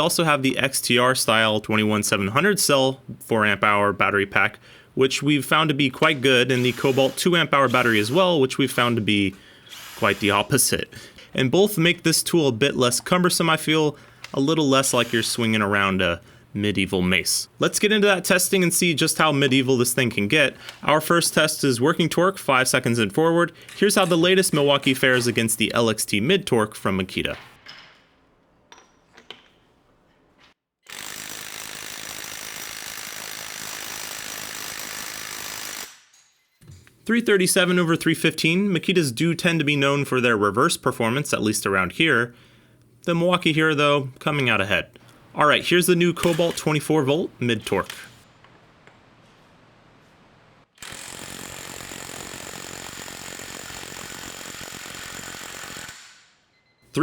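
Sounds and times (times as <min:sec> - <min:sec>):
impact wrench hammering: 0:46.2 - 0:46.8.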